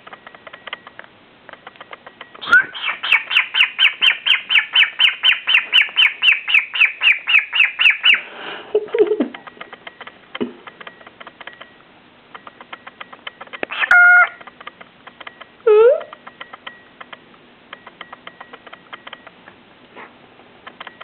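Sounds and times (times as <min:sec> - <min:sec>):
cockatiel chirping rapidly: 0:02.4 - 0:08.2
loud bird whistle: 0:02.4 - 0:08.3.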